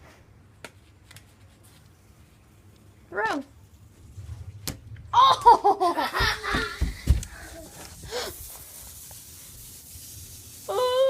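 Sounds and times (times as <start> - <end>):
faint steady hiss: 0.0 - 11.0
wind bump on microphone: 3.8 - 8.1.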